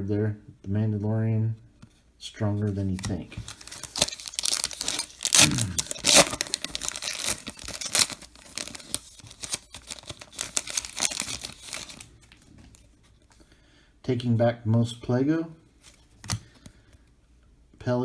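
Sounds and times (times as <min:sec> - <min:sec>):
foil wrapper tearing and crinkling: 0:02.9 - 0:12.2.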